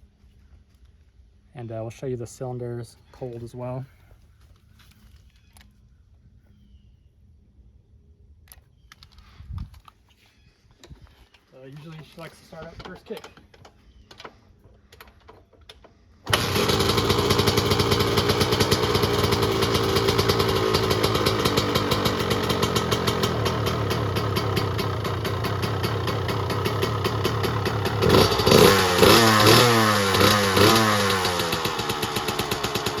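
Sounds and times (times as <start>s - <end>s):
engine fast idle: 16.3s - 33.0s
engine throttle blips: 16.3s - 33.0s
two-stroke engine starting: 16.3s - 33.0s.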